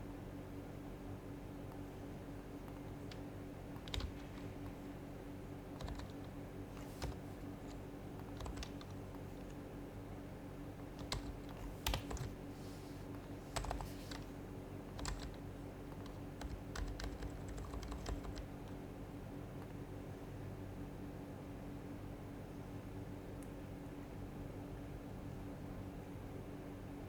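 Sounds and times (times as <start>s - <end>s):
steady low hum: 0.0s - 27.0s
soft muted keyboard clacks: 1.5s - 9.9s, 10.6s - 20.0s.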